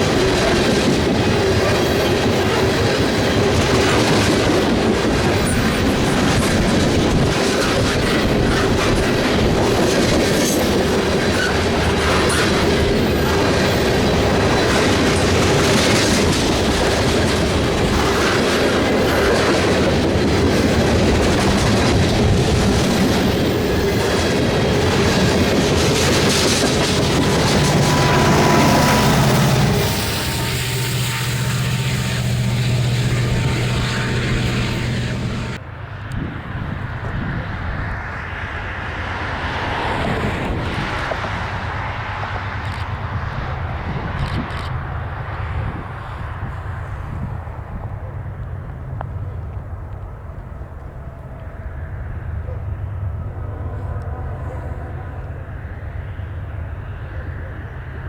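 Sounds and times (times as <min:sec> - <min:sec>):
wheels clacking over rail joints: 0:00.0 - 0:35.6
freight train cars rolling past: 0:00.0 - 0:58.0
steady whine: 0:22.8 - 0:35.6.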